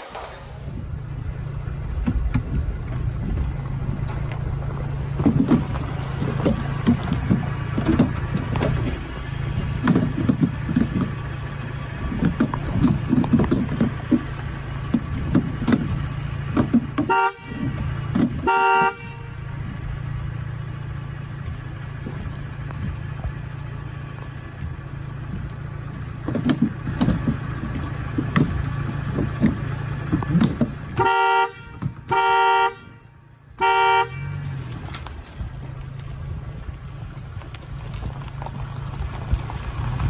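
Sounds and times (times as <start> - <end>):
engine idling: 0.0 - 40.0
vehicle horn honking: 17.0 - 19.6, 30.9 - 34.6.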